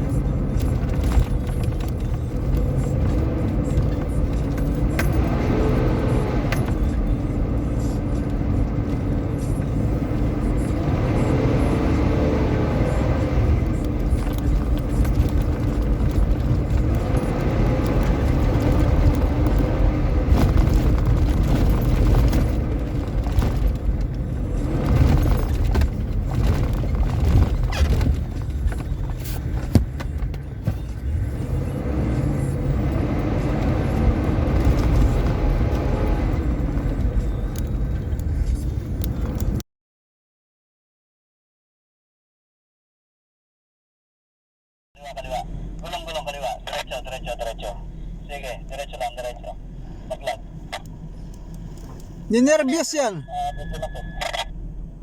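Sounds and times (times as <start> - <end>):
off-road vehicle engine: 0.0 - 39.6, 45.0 - 55.0
knocks and rattles: 13.7 - 31.1.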